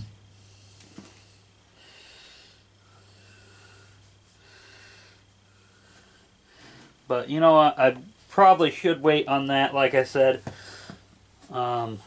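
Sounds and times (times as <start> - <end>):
steady low hum: 0.0 - 12.0
person breathing: 0.3 - 7.0, 10.4 - 11.1.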